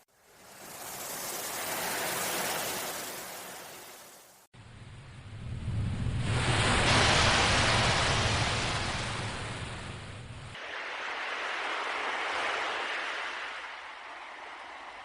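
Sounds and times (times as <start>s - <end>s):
ocean waves washing in: 0.0s - 15.0s.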